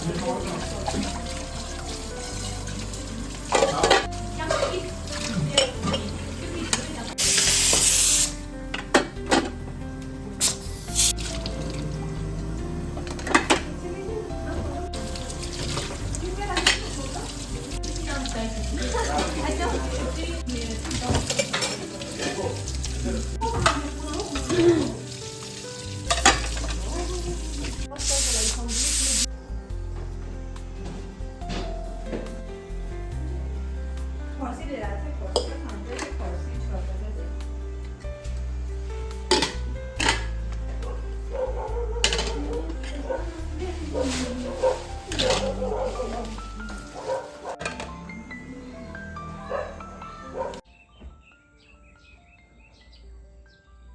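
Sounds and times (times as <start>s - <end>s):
food sizzling in a pan: 0.0s - 8.4s, 10.4s - 12.2s, 14.8s - 29.3s
utensils clinking on cookware: 0.0s - 9.6s, 15.0s - 29.3s, 42.0s - 43.2s, 44.0s - 47.9s
soft background music: 0.0s - 53.9s
loud hiss: 7.2s - 8.6s, 10.4s - 11.4s, 27.9s - 29.3s.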